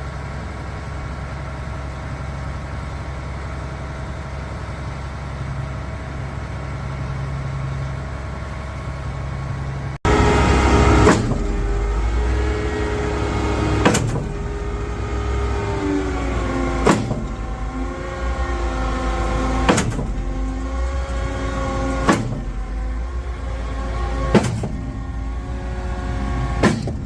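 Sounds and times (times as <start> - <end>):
engine hum with hydraulic whine: 0.0 - 27.0
sharp clunk of pump cylinders: 10.9 - 12.0, 13.6 - 14.8, 16.4 - 22.8, 23.4 - 25.1, 26.5 - 27.0.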